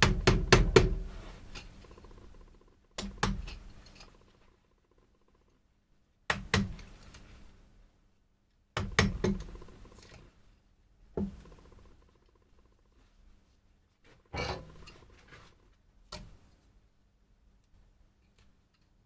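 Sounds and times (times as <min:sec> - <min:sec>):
hammer striking chisel into wood: 0:00.0 - 0:01.1, 0:03.0 - 0:03.7, 0:06.3 - 0:06.8, 0:08.8 - 0:09.7.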